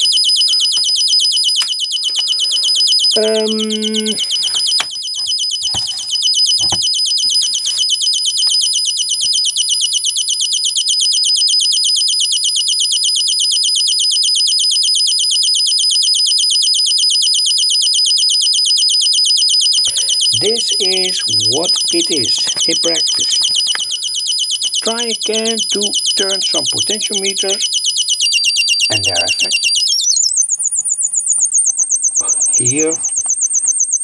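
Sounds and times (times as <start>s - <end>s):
electronic bird chirps from speaker: 19.8s - 34.0s.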